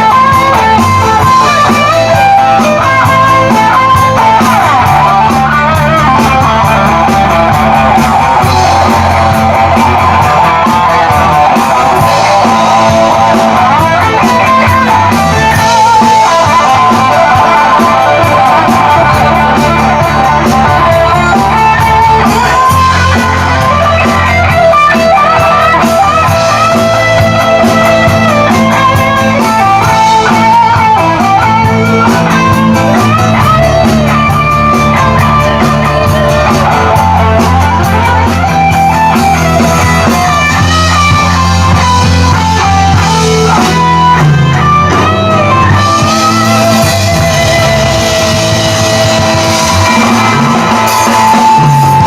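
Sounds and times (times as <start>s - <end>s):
bass guitar: 0.0s - 52.0s
drums: 0.0s - 52.0s
electric guitar solo: 0.0s - 52.0s.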